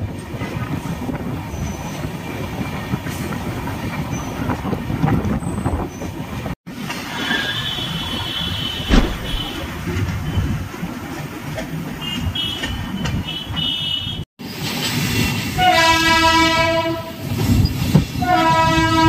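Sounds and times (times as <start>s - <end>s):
train wheels rumbling: 0.0s - 13.6s
sharp knock: 8.9s - 9.8s.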